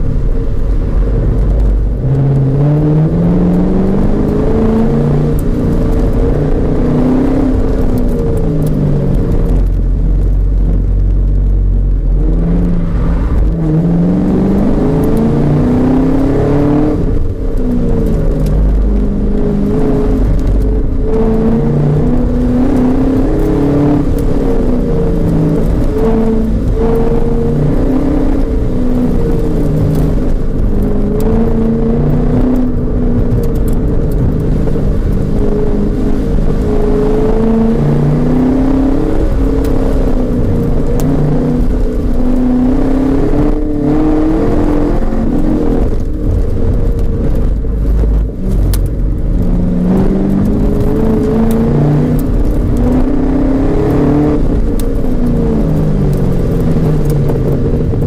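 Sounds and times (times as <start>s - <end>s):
car engine revving from inside: 0.0s - 58.0s.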